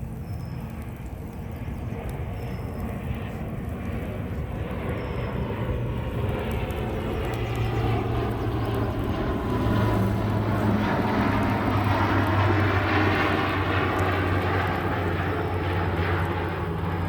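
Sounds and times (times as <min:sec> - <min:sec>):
passing engine drone: 0:03.1 - 0:17.0.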